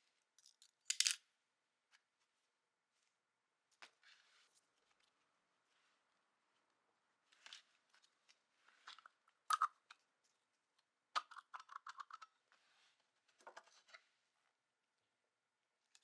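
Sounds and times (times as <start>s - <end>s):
metal tools clicking and clinking: 0.9s - 1.2s.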